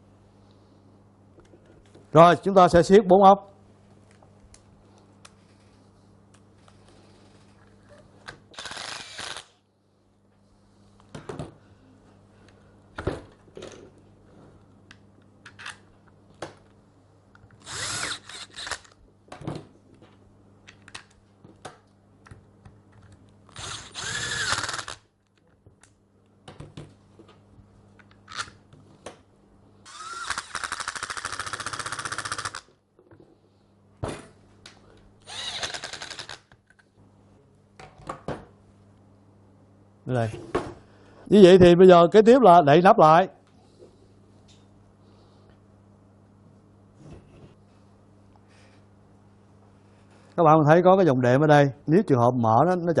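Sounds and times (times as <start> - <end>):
power screwdriver driving screws: 8.6 - 9.5, 17.6 - 19.0, 23.6 - 25.0, 29.9 - 32.6, 35.3 - 36.4.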